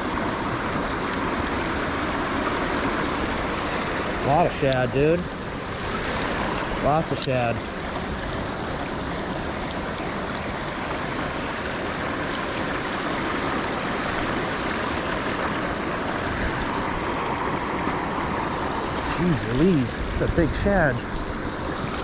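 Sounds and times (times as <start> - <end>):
rain hissing: 18.5 - 22.0.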